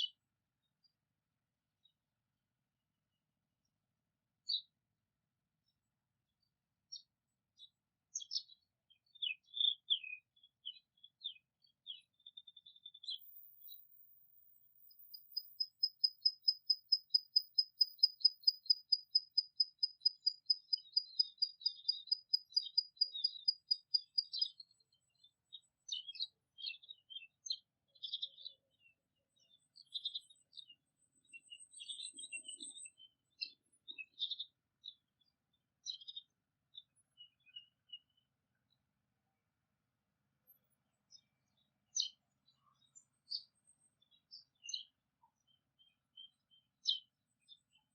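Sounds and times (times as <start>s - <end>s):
bird chirps: 6.9s - 38.7s, 40.5s - 47.9s.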